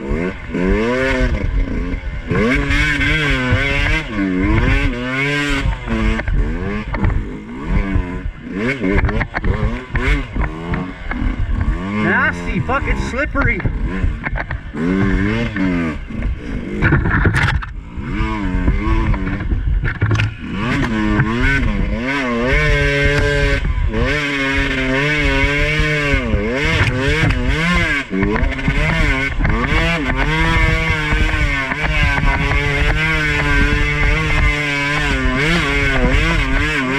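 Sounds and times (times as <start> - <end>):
dirt bike engine revving: 0.0 - 36.9
knocks and clatters: 8.8 - 11.8, 13.4 - 15.8, 16.8 - 17.8, 18.7 - 21.5.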